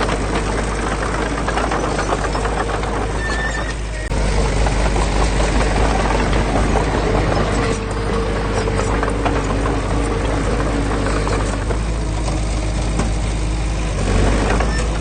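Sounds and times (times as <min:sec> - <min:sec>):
diesel engine rumbling: 0:00.0 - 0:15.0
faint clicks and knocks: 0:04.6 - 0:13.2.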